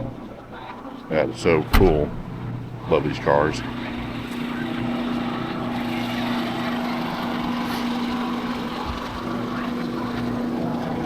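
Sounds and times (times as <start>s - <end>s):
engine running steadily: 1.4s - 11.0s.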